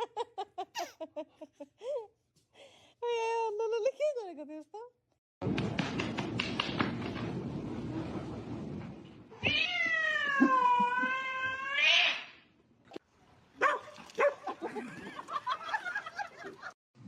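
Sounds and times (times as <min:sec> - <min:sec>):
cat meowing: 0:09.4 - 0:12.3.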